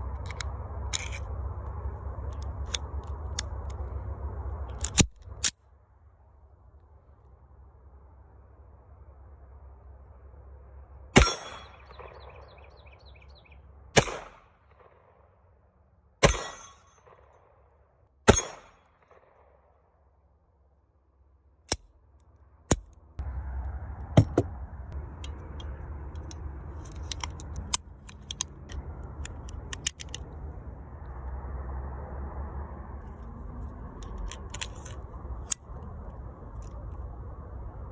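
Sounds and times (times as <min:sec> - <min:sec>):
sharp metallic clicks: 0:04.6 - 0:05.6, 0:21.6 - 0:23.0, 0:24.2 - 0:30.4
handgun shots echoing: 0:11.2 - 0:12.4, 0:14.0 - 0:15.0, 0:16.2 - 0:17.2, 0:18.3 - 0:19.3
handling clicks: 0:25.1 - 0:30.4, 0:33.9 - 0:35.7.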